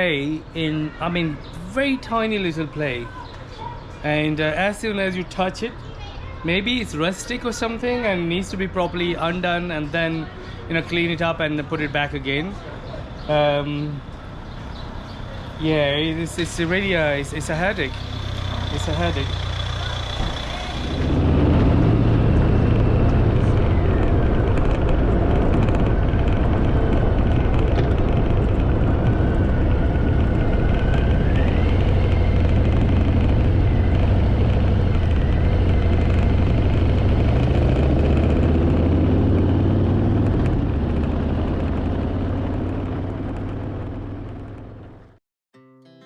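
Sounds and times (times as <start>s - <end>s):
motorcycle engine running: 13.1s - 45.2s.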